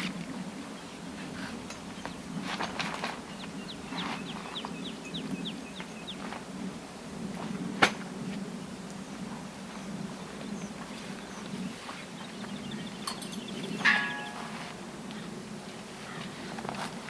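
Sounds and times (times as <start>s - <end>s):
songbird chirping: 3.2s - 6.3s, 9.8s - 14.7s.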